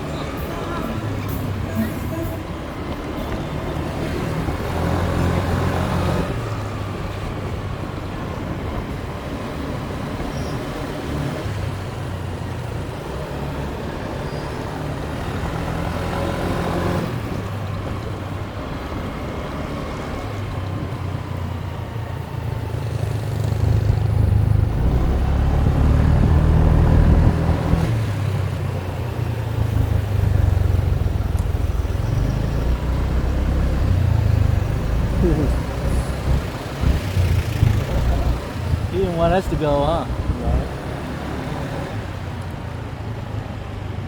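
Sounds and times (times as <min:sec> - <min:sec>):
wind and road noise: 0:00.0 - 0:44.0
motorbike engine running: 0:34.0 - 0:39.1.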